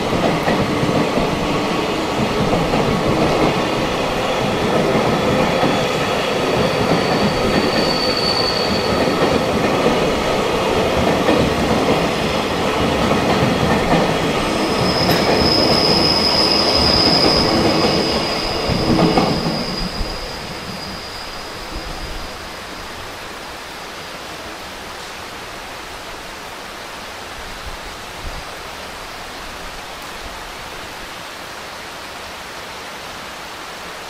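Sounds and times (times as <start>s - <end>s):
high-pitched squeal: 5.2s - 9.6s, 14.4s - 22.5s.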